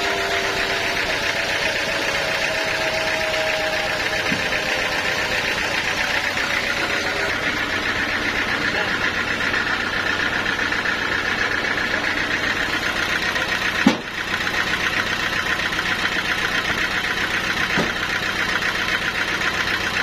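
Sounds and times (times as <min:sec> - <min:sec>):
sawmill machinery running: 0:00.0 - 0:20.0
sharp knock: 0:13.8 - 0:14.1.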